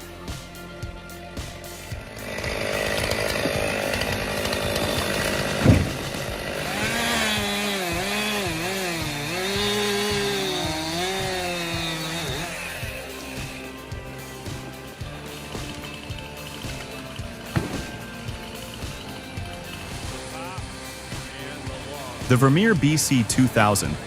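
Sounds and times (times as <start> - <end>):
chainsaw cutting: 1.4 - 24.0
sharp crack: 2.3 - 13.6, 15.4 - 23.7.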